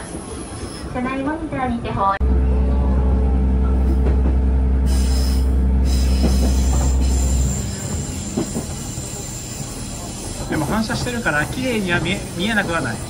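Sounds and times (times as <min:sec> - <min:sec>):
train wheels rumbling on rails: 0:00.0 - 0:13.0
diesel engine droning: 0:02.2 - 0:10.5.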